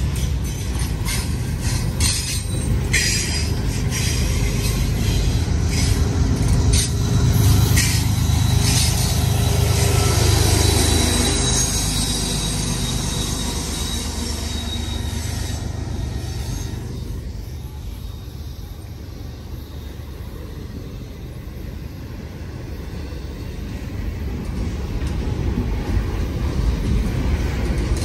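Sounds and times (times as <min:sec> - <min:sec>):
freight train rumbling past: 0:00.0 - 0:28.0
high wheel squeal: 0:00.4 - 0:21.4.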